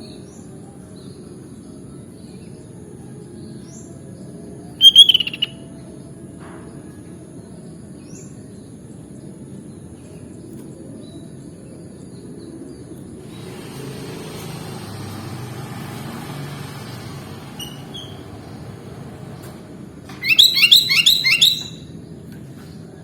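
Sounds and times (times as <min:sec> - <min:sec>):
faint bird chirps: 0:04.8 - 0:05.6, 0:20.2 - 0:21.9.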